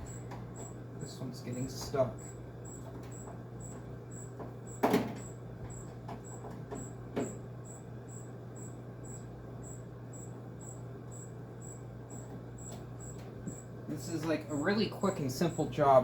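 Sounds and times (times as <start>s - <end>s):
knocks on air conditioner case: 4.4s - 7.4s.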